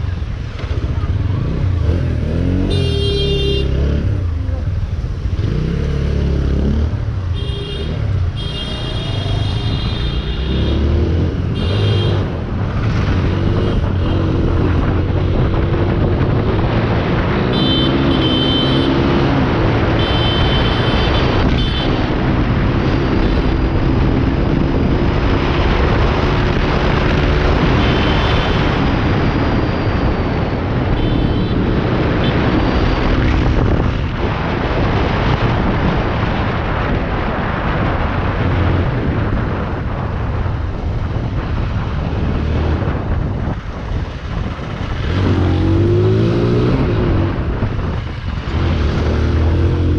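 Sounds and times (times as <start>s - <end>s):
motorcycle engine: 0.2s - 34.2s
wind buffeting microphone: 12.2s - 17.6s, 19.0s - 49.9s.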